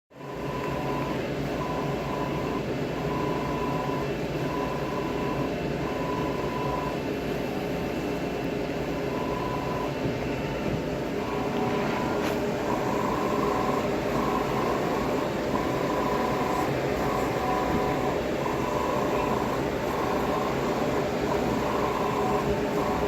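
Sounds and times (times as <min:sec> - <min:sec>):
machine humming: 0:00.2 - 0:23.0.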